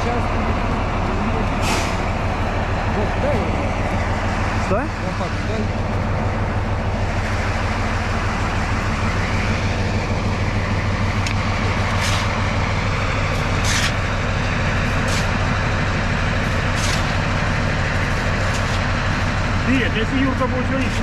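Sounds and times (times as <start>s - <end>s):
locomotive engine idling: 0.0s - 21.0s
short scrapes: 1.6s - 2.1s, 11.9s - 12.4s, 13.6s - 14.0s, 15.0s - 15.3s.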